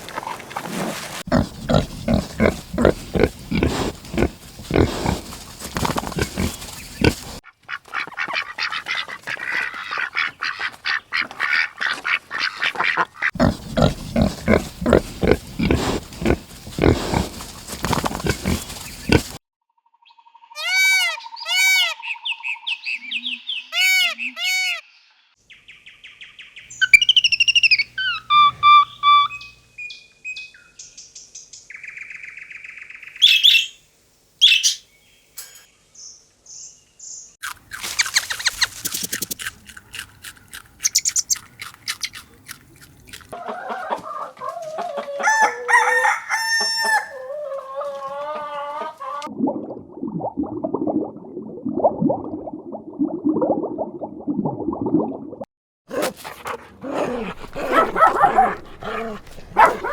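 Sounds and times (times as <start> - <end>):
bird chirps and squawks: 26.7 - 29.5, 34.4 - 34.8, 40.8 - 42.2
chickens clucking: 37.8 - 49.3, 57.0 - 59.9.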